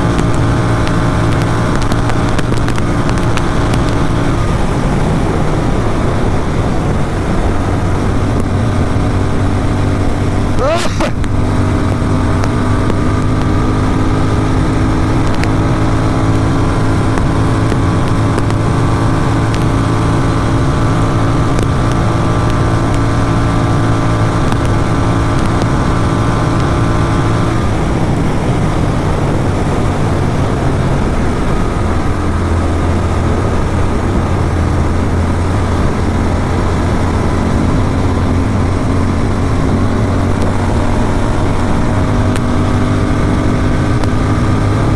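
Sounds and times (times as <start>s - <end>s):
motorcycle engine cruising: 0.0s - 44.9s
wind rushing over microphone: 0.0s - 44.9s.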